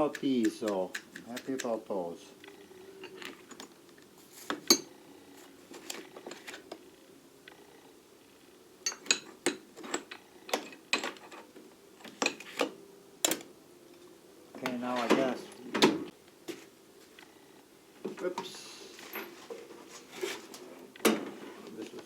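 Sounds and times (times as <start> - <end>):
small metal tools clinking: 4.7 - 4.9, 8.8 - 11.4.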